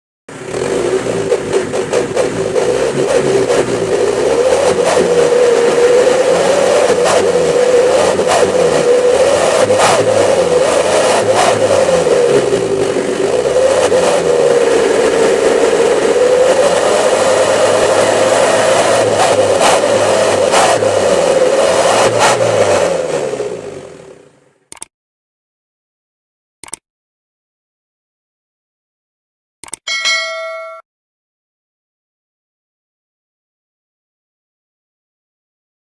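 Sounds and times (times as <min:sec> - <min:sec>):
engine revving: 0:00.3 - 0:24.4.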